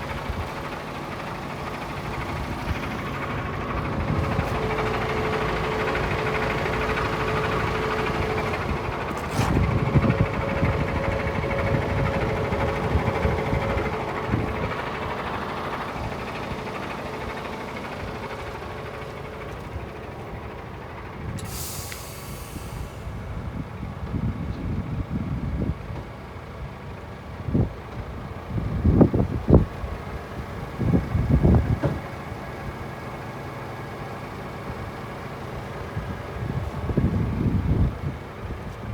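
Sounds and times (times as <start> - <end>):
truck diesel engine running: 0.0 - 38.9
sharp click: 21.4 - 22.0
air brake hiss: 21.4 - 23.3.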